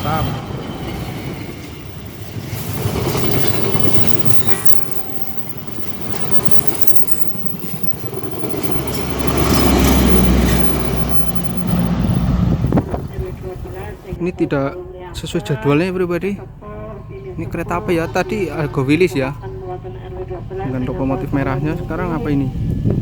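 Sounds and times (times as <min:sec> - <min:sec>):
train wheels rushing on rails: 0:00.0 - 0:14.1
heavy low rumble: 0:00.0 - 0:23.0.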